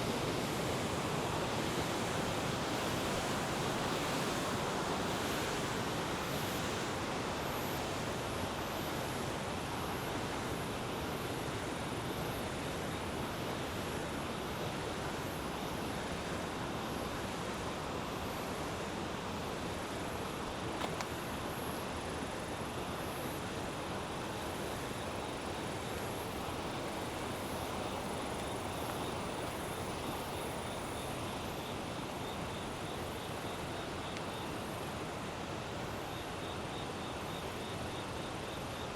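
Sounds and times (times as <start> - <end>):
river rushing: 19.9 - 36.1
insects chirping: 19.9 - 38.9.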